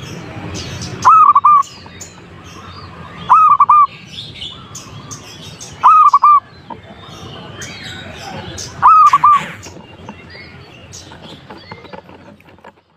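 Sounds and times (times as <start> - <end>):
dove cooing: 1.0 - 1.7, 3.3 - 3.9, 5.8 - 6.4, 8.8 - 9.8.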